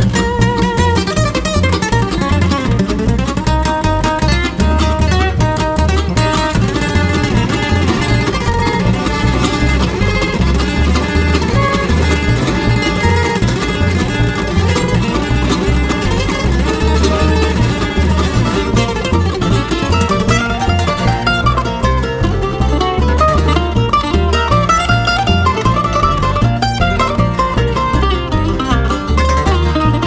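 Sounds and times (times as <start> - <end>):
fiddle: 0.0 - 30.0
guitar: 0.0 - 30.0
mandolin: 0.0 - 30.0
steady low beat: 0.0 - 30.0.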